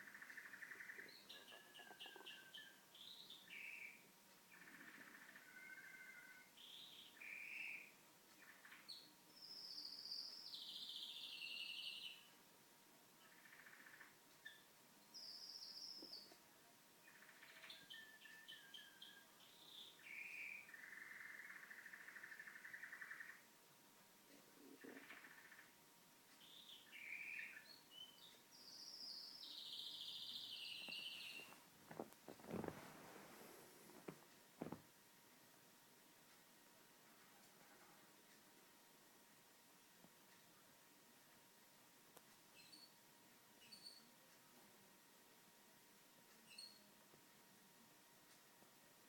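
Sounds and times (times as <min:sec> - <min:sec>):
canary singing: 0:00.0 - 0:12.4, 0:13.2 - 0:16.4, 0:17.0 - 0:23.5, 0:26.4 - 0:34.8, 0:42.5 - 0:43.0, 0:43.6 - 0:44.1, 0:46.4 - 0:46.9.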